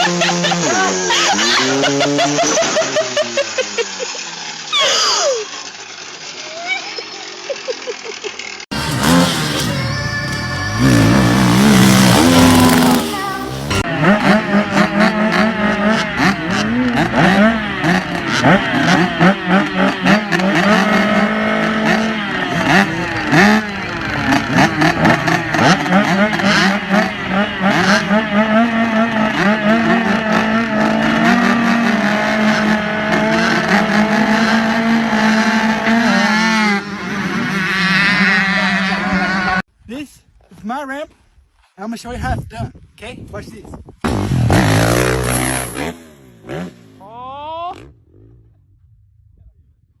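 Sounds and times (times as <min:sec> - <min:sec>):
engine holding steady pitch: 0:00.0 - 0:13.9
motorcycle engines revving: 0:00.0 - 0:39.7, 0:44.0 - 0:49.3.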